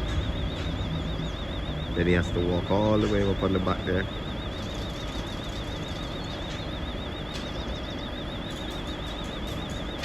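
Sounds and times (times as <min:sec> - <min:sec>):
vehicle engines rumbling: 0:00.0 - 0:06.6.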